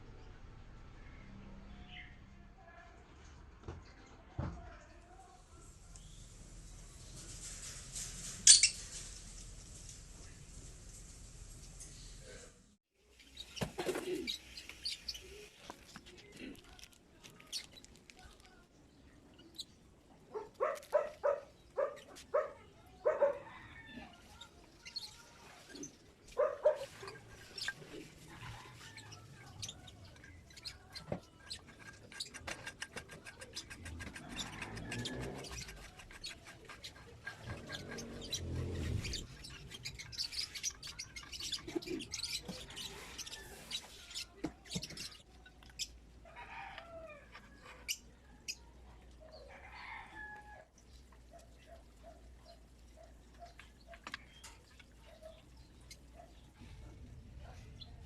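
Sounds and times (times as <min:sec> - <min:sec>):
chickens clucking: 0:20.3 - 0:50.3.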